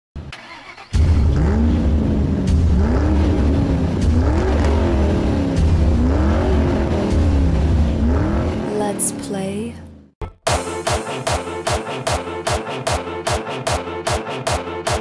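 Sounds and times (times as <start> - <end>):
car engine revving: 0.2 - 9.3.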